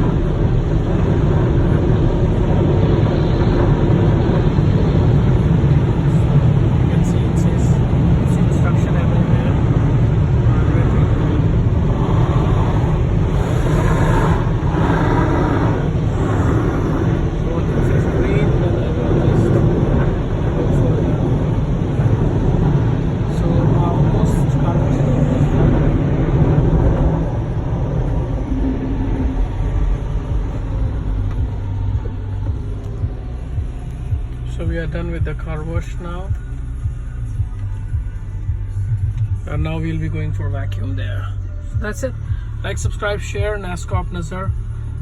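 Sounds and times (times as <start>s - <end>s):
car wash air blowers rushing: 0.0s - 33.6s.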